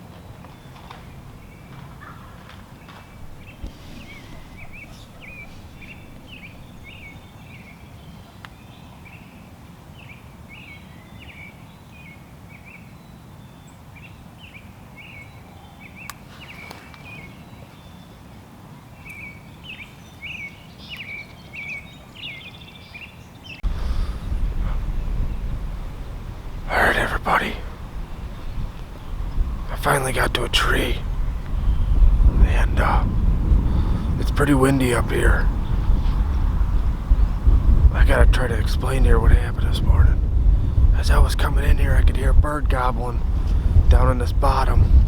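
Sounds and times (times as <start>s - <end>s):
wind noise: 0.0s - 8.2s, 23.6s - 45.0s
wind buffeting microphone: 0.0s - 9.2s, 23.6s - 45.0s
songbird chirping: 0.0s - 18.3s, 18.9s - 39.9s.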